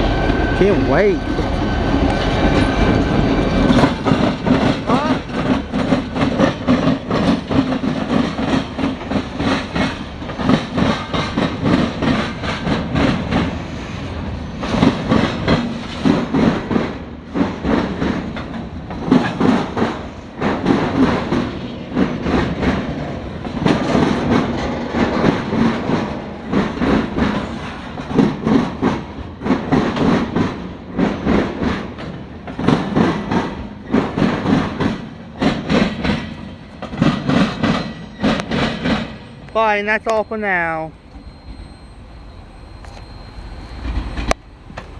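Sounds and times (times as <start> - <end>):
train rumble: 0.0 - 44.9
train wheels clattering over joints: 0.2 - 13.7, 14.6 - 40.2.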